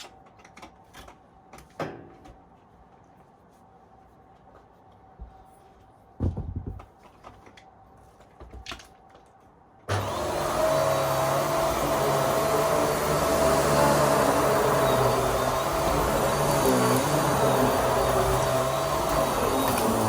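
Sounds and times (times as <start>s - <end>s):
vacuum cleaner motor whining: 9.9s - 20.0s.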